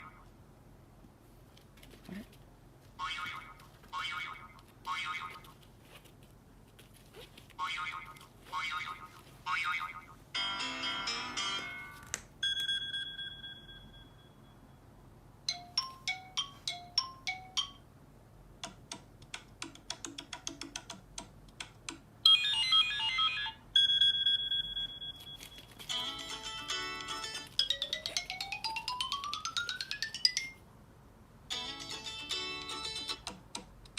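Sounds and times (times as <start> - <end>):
ringing beep: 12.4 - 14.8, 22.3 - 25.5
ticking notes: 25.9 - 30.6.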